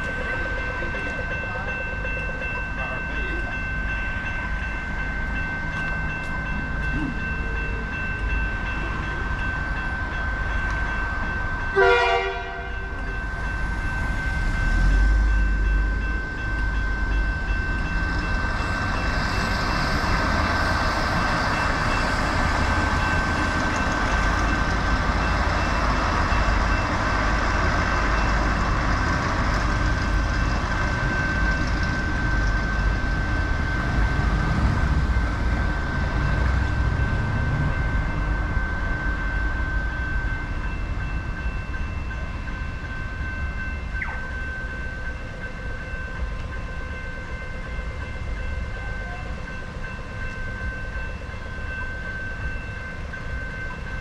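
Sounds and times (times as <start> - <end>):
train rushing rumble: 0.0 - 54.0
train horn blast: 11.8 - 12.9.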